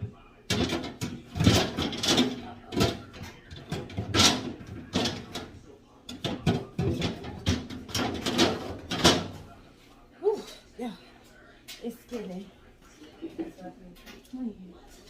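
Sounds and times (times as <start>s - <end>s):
refrigerator drawers clattering: 0.5s - 9.6s.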